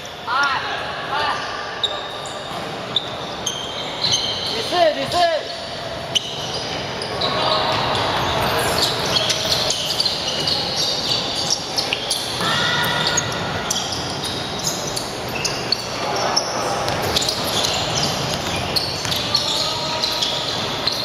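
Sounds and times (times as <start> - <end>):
players' voices echoing: 0.0 - 21.0
shoe squeaks: 1.2 - 21.0
ball bouncing on hall floor: 16.8 - 21.0.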